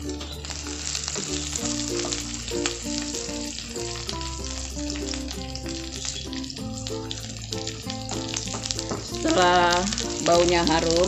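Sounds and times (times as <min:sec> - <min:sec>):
background music: 0:00.0 - 0:11.0
onions sizzling in oil: 0:00.0 - 0:11.0.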